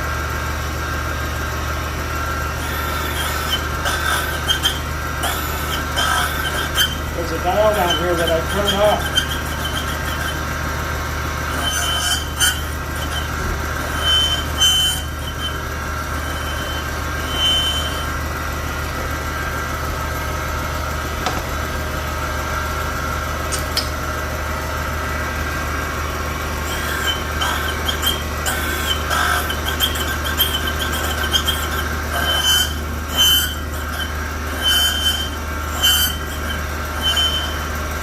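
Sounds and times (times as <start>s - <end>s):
cutting machine hum: 0.0s - 38.0s
short high squeaks: 2.6s - 10.4s, 11.5s - 18.2s, 26.6s - 37.8s.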